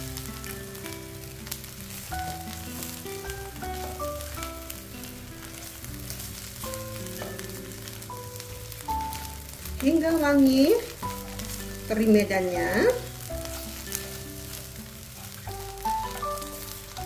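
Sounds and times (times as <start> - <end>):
background music: 0.0 - 17.0
food sizzling in a wok: 0.0 - 17.0
spatula scraping a pan: 12.9 - 16.9.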